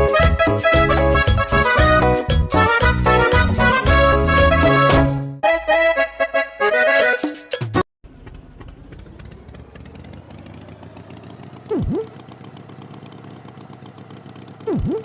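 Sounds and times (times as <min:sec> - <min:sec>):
cartoon tractor engine putter: 0:07.6 - 0:15.0
swooping sound effect: 0:11.7 - 0:12.1, 0:14.6 - 0:15.0.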